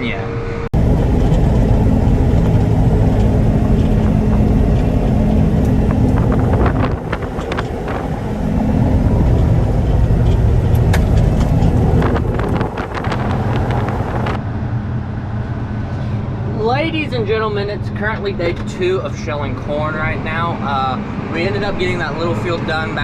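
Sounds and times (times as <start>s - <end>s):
light clicks and rattles: 0.8s - 14.4s
tractor engine running: 0.8s - 14.4s.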